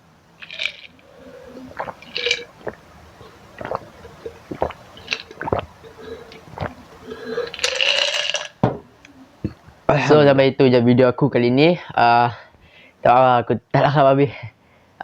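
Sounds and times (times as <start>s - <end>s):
short hissing sounds: 0.4s - 8.4s
breathy sound: 0.6s - 8.3s.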